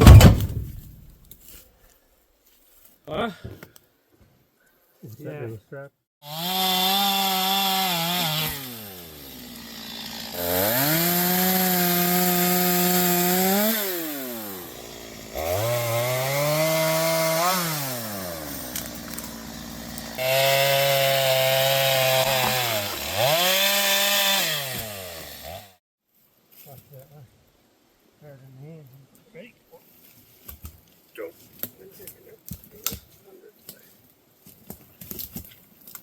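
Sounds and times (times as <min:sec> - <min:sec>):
chainsaw revving: 0:06.2 - 0:25.8.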